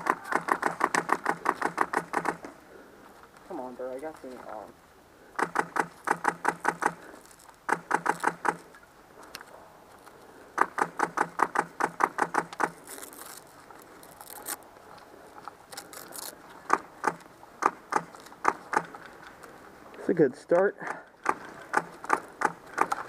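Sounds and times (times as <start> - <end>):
airsoft guns firing: 0.0 - 2.5, 5.4 - 8.7, 10.6 - 12.8.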